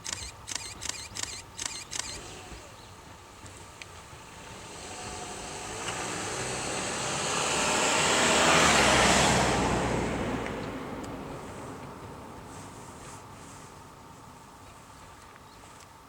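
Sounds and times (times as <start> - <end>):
electric train passing: 4.2 - 12.7.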